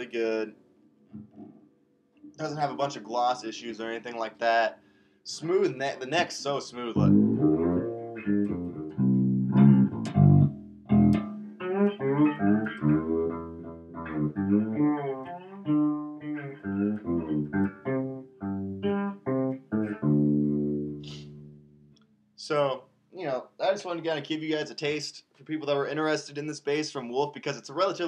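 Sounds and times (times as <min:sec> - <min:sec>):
fretless electric bass plucked notes: 0:07.0 - 0:22.0.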